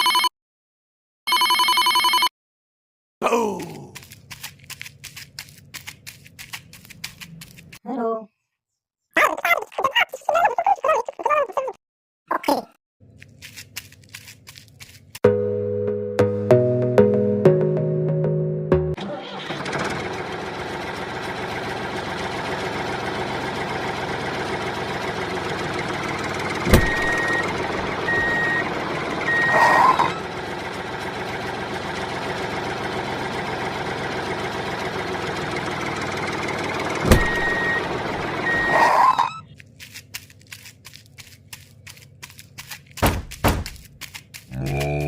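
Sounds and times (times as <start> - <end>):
vehicle engine running: 18.8 - 45.0.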